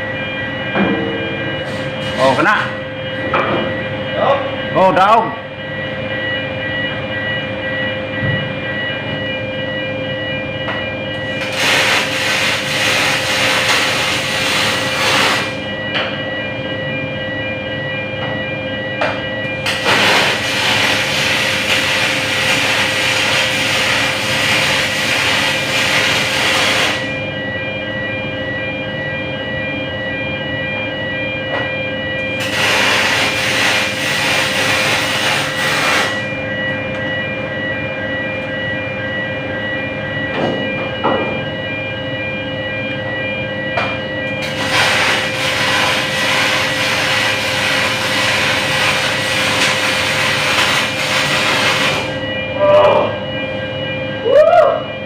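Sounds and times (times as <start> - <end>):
machine hum with whining tones: 0.0 - 55.0
welding arc hissing and crackling: 11.4 - 15.6, 19.6 - 27.1, 32.4 - 36.2, 44.4 - 52.2.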